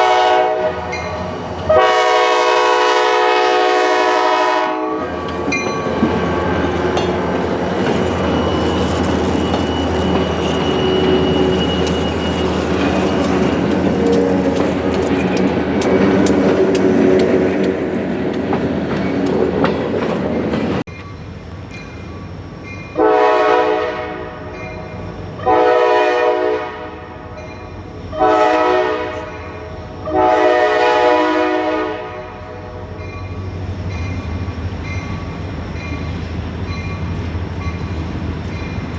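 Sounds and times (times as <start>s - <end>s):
locomotive air horn blasts: 0.0s - 5.2s, 10.6s - 17.6s, 23.0s - 24.6s, 25.4s - 27.2s, 28.2s - 29.4s, 30.0s - 32.9s
freight train rumbling past: 0.0s - 38.9s
wheels clicking over rail joints: 6.8s - 21.9s.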